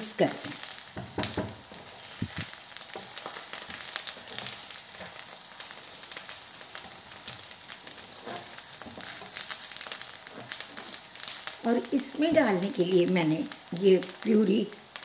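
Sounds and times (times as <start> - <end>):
onions sizzling in oil: 0.0 - 15.0
spoon scraping pan: 6.7 - 11.5.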